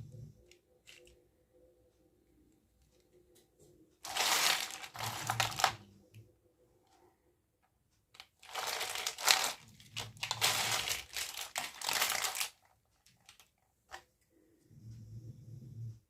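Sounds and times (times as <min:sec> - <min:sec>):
packaging crinkling: 0:04.0 - 0:05.9, 0:08.2 - 0:13.6.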